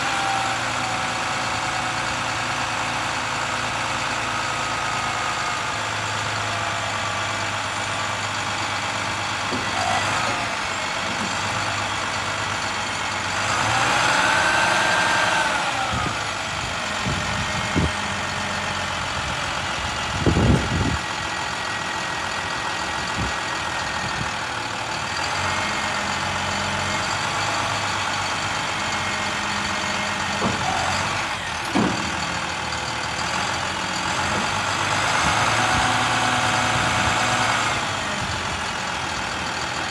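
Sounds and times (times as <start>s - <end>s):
diesel engine running: 0.0s - 39.9s
short clunks: 9.3s - 11.9s, 30.1s - 32.5s.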